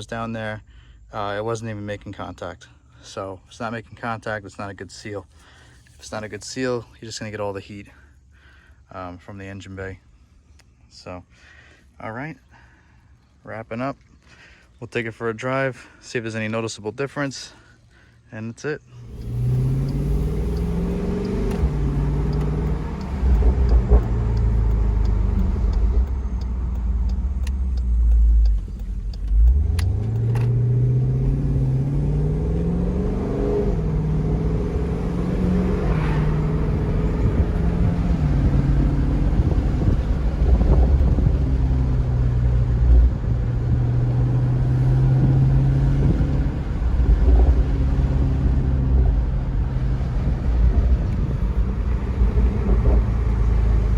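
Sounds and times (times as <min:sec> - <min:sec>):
car engine accelerating: 0:18.8 - 0:53.9.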